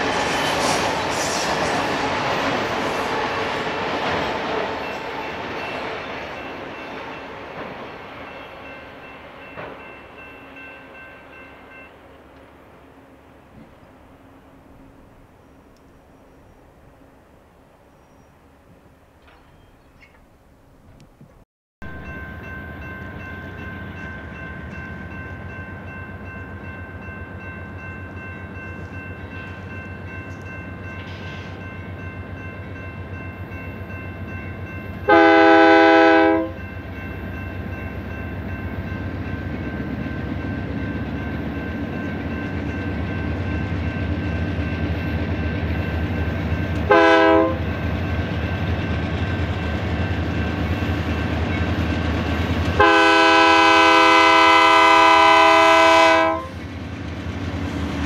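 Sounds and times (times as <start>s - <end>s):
freight train rumbling: 0.0s - 58.0s
locomotive horn blasts: 35.1s - 36.6s, 46.8s - 47.7s, 52.8s - 56.6s.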